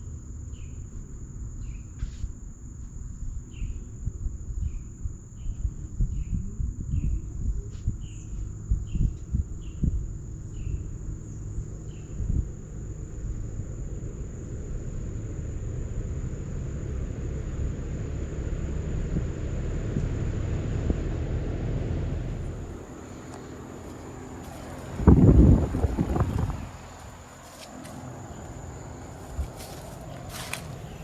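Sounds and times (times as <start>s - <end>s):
crickets chirping: 0.0s - 21.2s, 22.1s - 31.0s
heat pump fan and compressor hum: 22.2s - 31.0s.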